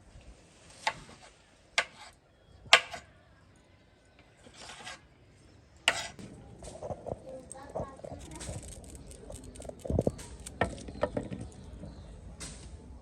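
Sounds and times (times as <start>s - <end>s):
rasping scraping strokes: 4.4s - 5.1s, 5.9s - 6.2s.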